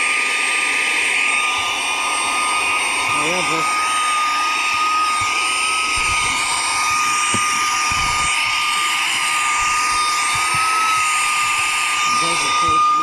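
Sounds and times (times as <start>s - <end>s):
vacuum motor whining: 0.0s - 13.0s.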